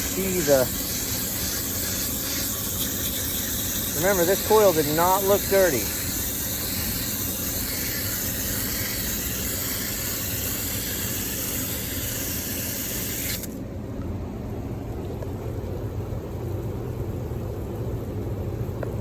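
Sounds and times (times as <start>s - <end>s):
water spray hissing: 0.0s - 13.6s.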